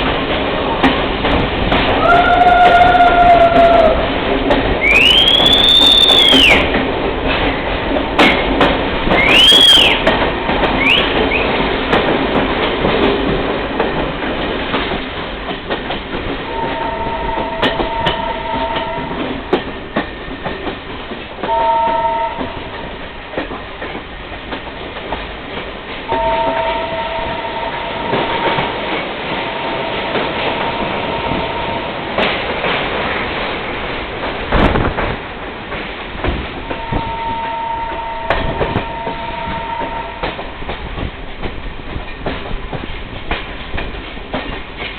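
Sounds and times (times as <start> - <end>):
train wheels rumbling on rails: 0.0 - 44.9
two-tone train horn: 16.5 - 19.4, 21.4 - 22.8, 26.1 - 32.0, 36.7 - 40.5.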